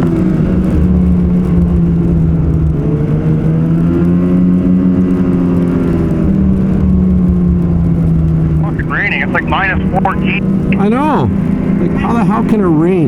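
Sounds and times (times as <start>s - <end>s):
snowmobile engine running: 8.6s - 12.8s.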